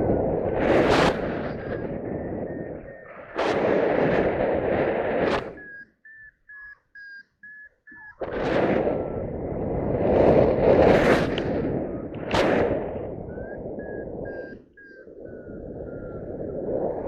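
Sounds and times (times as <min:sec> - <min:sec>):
wind rushing over microphone: 0:00.0 - 0:05.8, 0:08.1 - 0:17.0
variometer short beeps: 0:00.6 - 0:03.8, 0:05.2 - 0:09.3, 0:11.8 - 0:16.6.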